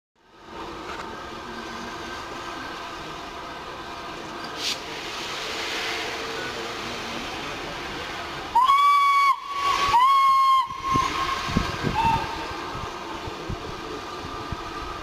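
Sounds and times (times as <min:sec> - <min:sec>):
train running: 0:00.2 - 0:15.0
steam hissing: 0:00.4 - 0:15.0
steam locomotive whistle blasts: 0:08.5 - 0:12.6.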